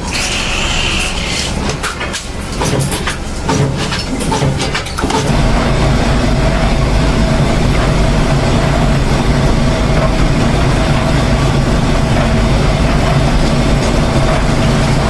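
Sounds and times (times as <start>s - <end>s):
knocks and clicks of metal work: 0.0s - 5.4s
machine motor humming: 0.0s - 15.0s.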